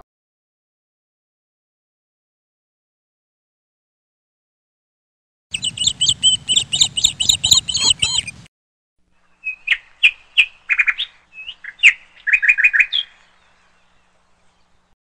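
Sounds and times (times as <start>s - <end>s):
songbird chirping and trilling: 5.5s - 8.5s, 9.2s - 15.0s.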